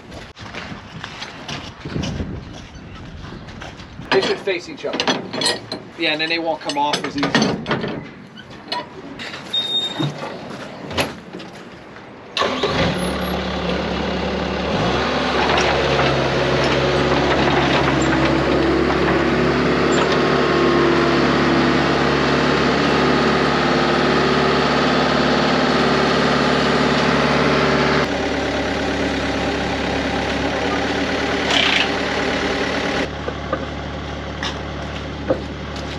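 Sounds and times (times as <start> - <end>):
metal clanks: 4.1 - 9.0
truck engine running: 12.4 - 35.9.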